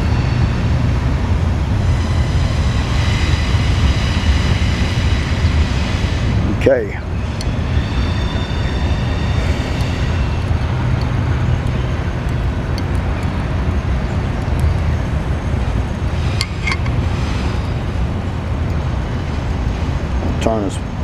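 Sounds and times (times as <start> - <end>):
welding torch hissing: 1.7 - 11.5, 16.0 - 18.9.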